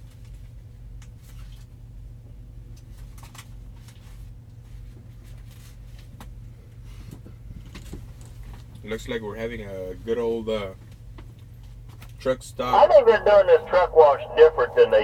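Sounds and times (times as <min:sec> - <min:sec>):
light clicks and rustles: 0:02.7 - 0:06.4, 0:07.0 - 0:08.9
diesel truck engine idling: 0:12.2 - 0:15.0.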